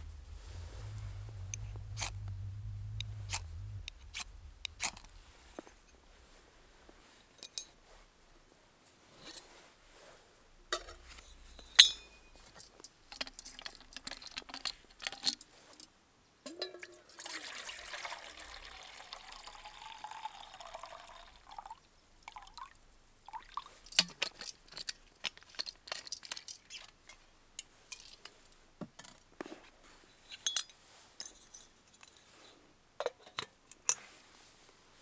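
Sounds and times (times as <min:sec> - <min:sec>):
water pouring into a vessel: 0:02.8 - 0:06.0, 0:16.7 - 0:24.0
utensils clinking: 0:10.8 - 0:15.4.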